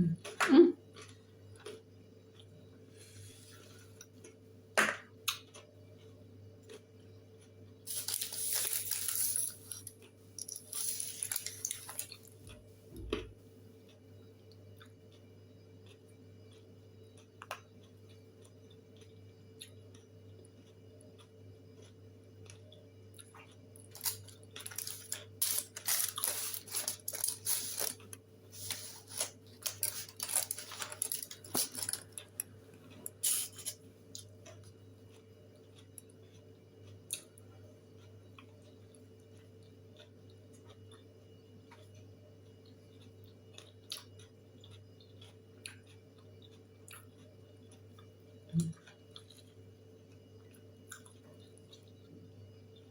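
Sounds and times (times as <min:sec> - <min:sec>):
steady low hum: 0:00.0 - 0:52.9
chicken being torn and chewed: 0:20.6 - 0:37.4.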